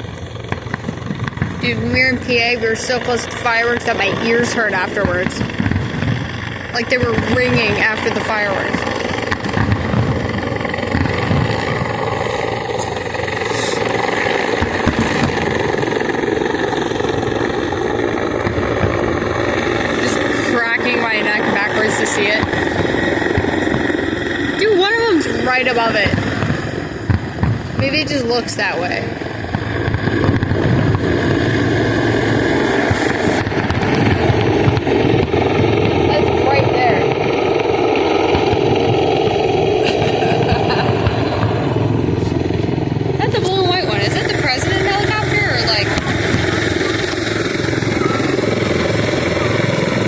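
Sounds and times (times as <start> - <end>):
distant fireworks booming: 0.0 - 50.0
fireworks crackling: 0.0 - 50.0.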